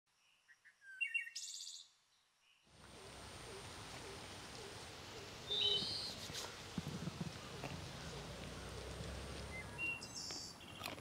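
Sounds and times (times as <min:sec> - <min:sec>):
soft low bird calls: 0:02.4 - 0:11.0
steady hiss: 0:02.8 - 0:09.6.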